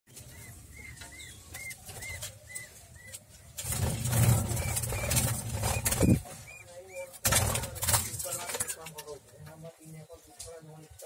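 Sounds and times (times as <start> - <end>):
small bird peeping: 0.1 - 7.2.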